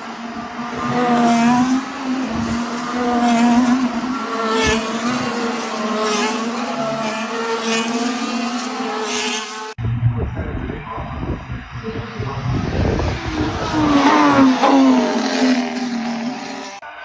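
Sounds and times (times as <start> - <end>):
racing car engine running: 0.0 - 16.8.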